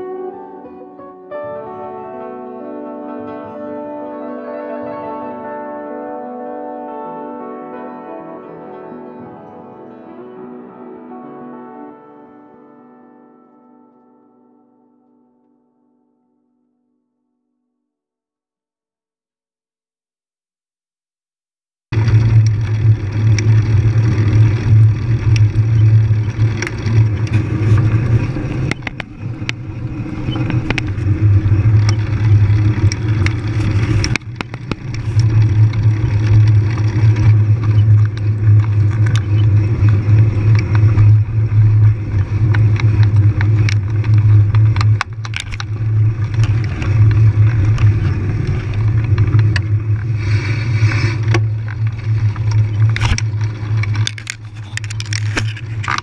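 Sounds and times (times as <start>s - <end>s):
rattles and knocks from rough ground: 21.9s - 50.2s, 50.9s - 56.0s
bike riding rumble: 21.9s - 56.0s.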